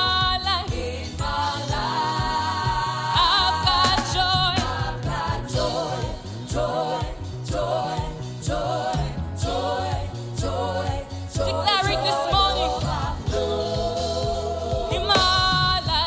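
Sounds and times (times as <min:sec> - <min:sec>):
band with bass and drums: 0:00.0 - 0:16.0
gospel choir singing: 0:00.0 - 0:16.0.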